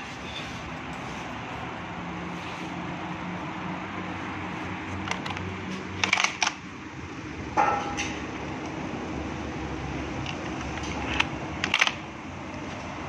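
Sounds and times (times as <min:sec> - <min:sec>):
clatter of clicks: 0:04.9 - 0:06.6, 0:10.2 - 0:12.0
sharp clicks: 0:10.2 - 0:12.1.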